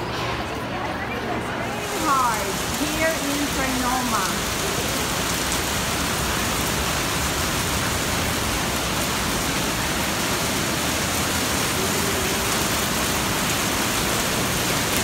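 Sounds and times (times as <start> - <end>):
rain falling on paving: 0.8 - 15.0.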